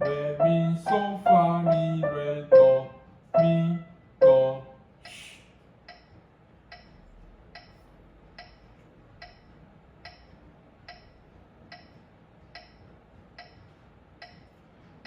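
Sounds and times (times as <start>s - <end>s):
metronome ticking: 0.0s - 4.6s, 8.4s - 8.6s, 10.0s - 10.3s, 10.9s - 11.1s, 12.6s - 12.8s, 13.4s - 13.6s.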